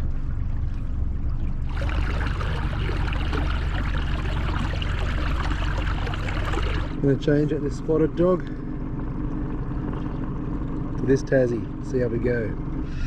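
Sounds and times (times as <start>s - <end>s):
water washing along hull: 0.0s - 7.0s
outboard motor running: 0.0s - 13.0s.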